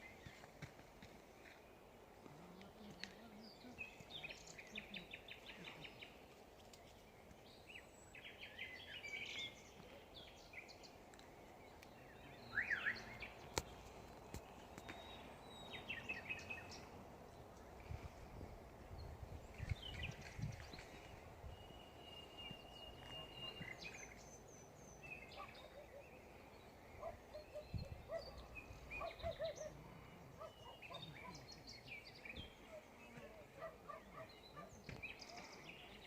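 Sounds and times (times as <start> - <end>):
birds trilling and chirping: 19.0 - 36.0.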